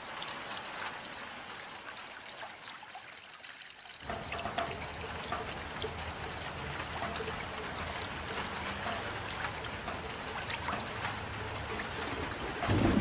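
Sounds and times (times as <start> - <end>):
steady rain with drop hits: 0.0 - 2.7, 4.0 - 13.0.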